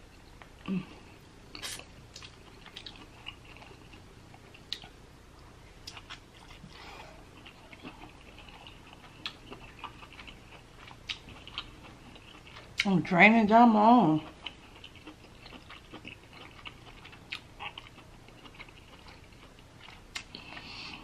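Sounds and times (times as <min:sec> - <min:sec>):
chewing mouth sounds: 0:05.8 - 0:12.9, 0:14.2 - 0:20.7.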